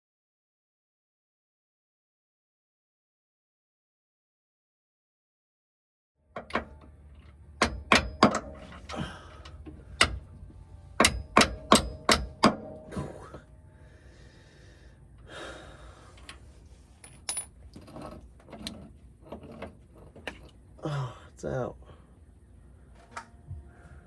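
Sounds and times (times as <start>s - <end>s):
quiet handling sounds: 22.8s - 23.9s.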